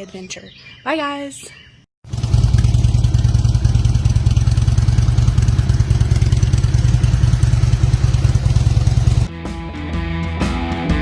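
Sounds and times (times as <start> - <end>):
motorcycle engine idling: 2.1 - 9.3.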